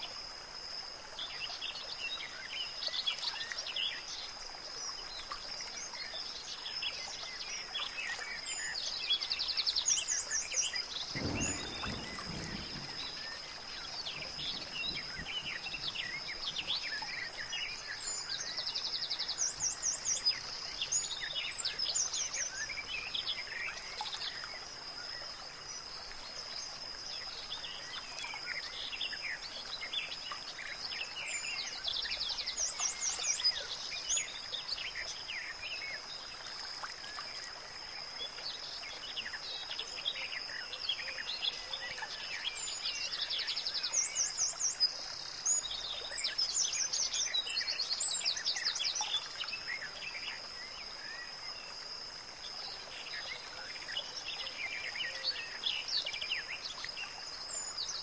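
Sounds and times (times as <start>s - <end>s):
faint background hiss: 0.0s - 58.0s
birds chirping and singing: 11.0s - 23.3s.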